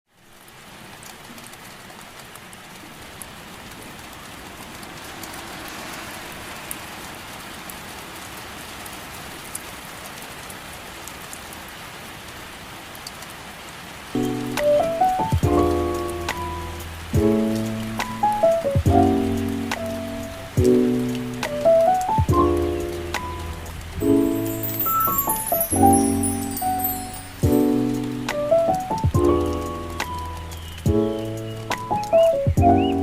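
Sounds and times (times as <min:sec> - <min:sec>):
steady rain: 0:00.1 - 0:33.0
drops ticking: 0:14.2 - 0:33.0
music: 0:14.2 - 0:33.0.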